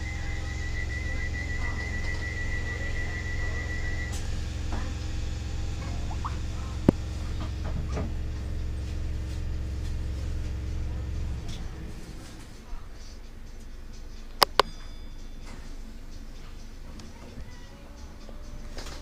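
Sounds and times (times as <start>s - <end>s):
high pulsing electronic tone: 0.0s - 12.2s
train carriage hum: 0.0s - 19.0s
sharp click: 14.4s - 14.7s.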